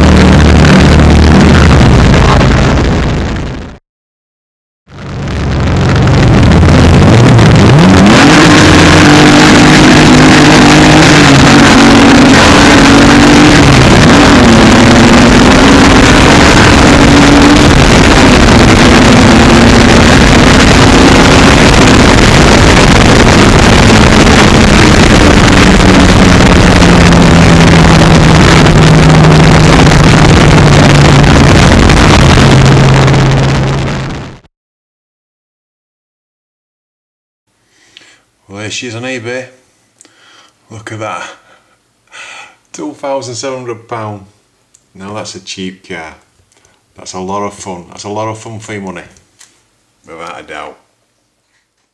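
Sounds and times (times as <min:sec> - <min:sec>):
drag car engine at full throttle: 0:00.0 - 0:03.7, 0:04.9 - 0:34.3.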